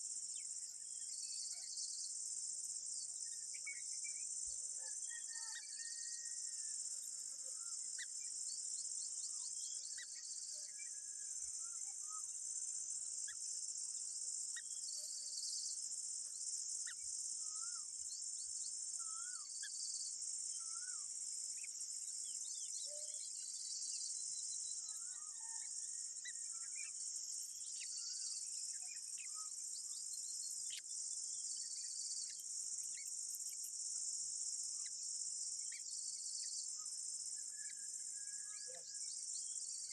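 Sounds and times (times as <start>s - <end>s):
insect chorus drone: 0.0s - 39.9s
bird chirps: 22.4s - 33.7s.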